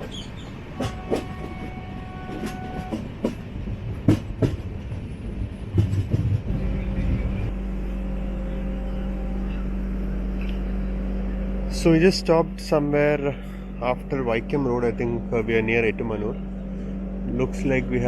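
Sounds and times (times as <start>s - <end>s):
train wheels clicking over rail joints: 0.0s - 7.2s
low train hum: 0.0s - 18.0s.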